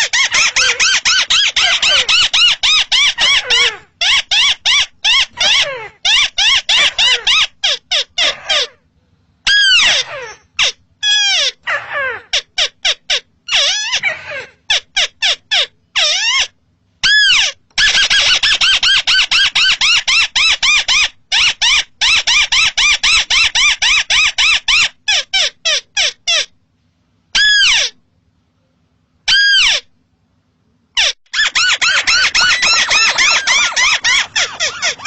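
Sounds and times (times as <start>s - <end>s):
crake calling: 0.0s - 8.9s, 31.0s - 35.0s.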